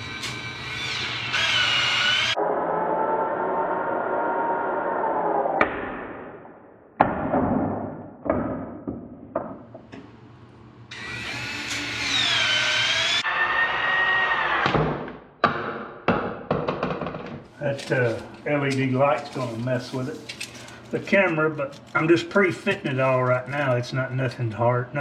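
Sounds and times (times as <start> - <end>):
pipe shears whining: 0.0 - 5.7, 10.9 - 14.8.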